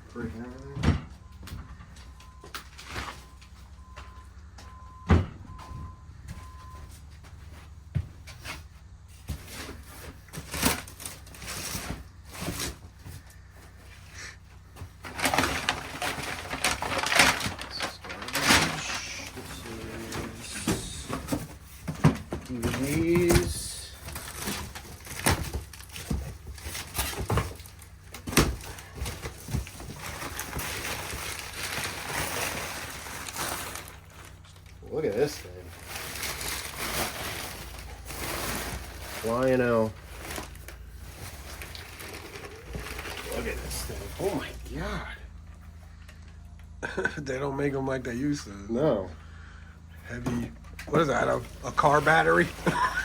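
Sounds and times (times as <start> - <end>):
knocks of items shifted: 0.3 - 34.5
scraping and rustling: 7.3 - 44.7.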